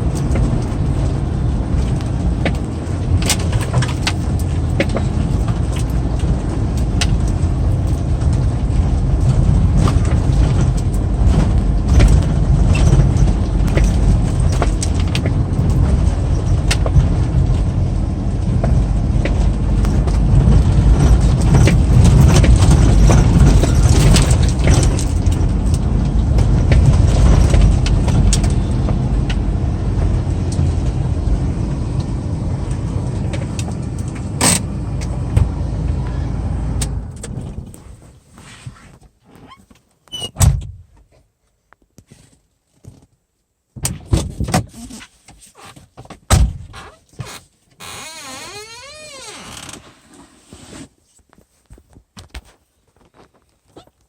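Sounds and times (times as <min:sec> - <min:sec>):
car interior road rumble: 0:00.0 - 0:38.9
small rattles and clicks: 0:18.4 - 0:29.4.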